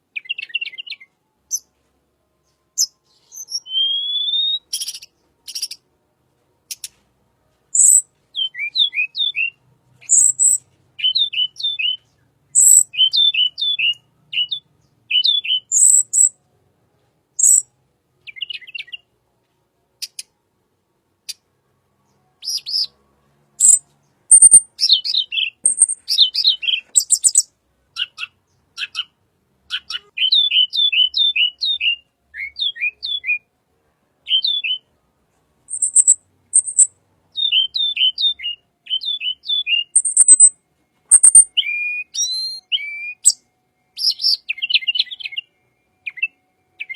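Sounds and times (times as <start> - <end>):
bird song chirps and high notes: 0.1 - 1.7, 2.4 - 5.8, 7.7 - 16.4, 17.4 - 19.2, 21.3 - 33.5, 34.2 - 34.9, 35.7 - 46.9.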